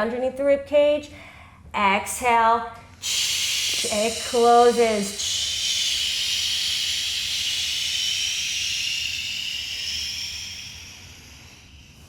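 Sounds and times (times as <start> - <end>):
breath hissing through teeth: 3.0 - 12.0.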